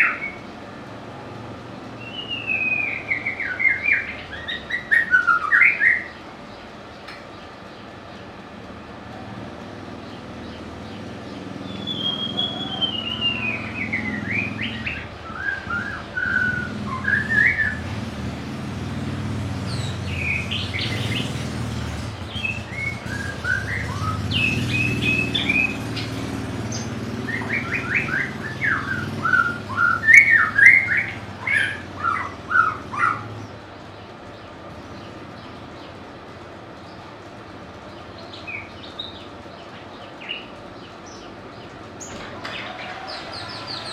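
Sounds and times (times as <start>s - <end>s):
bird singing whistled notes: 0.0s - 0.5s, 2.0s - 6.2s, 10.4s - 18.0s, 19.6s - 21.5s, 22.2s - 33.4s.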